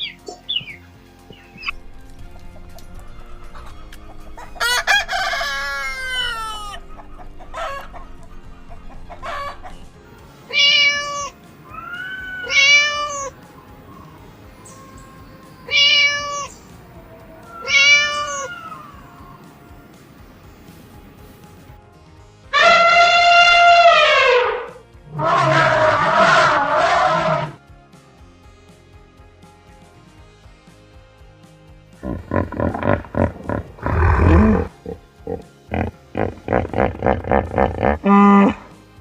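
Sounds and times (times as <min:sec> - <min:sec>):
loud pitched bird calls: 0:00.0 - 0:19.6, 0:32.0 - 0:38.7.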